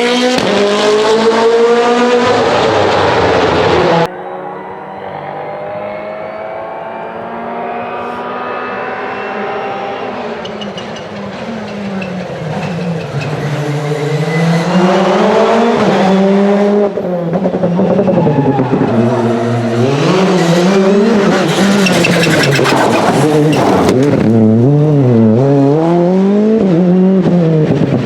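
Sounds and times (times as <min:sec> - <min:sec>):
rally car engine revving past: 0:13.0 - 0:28.0.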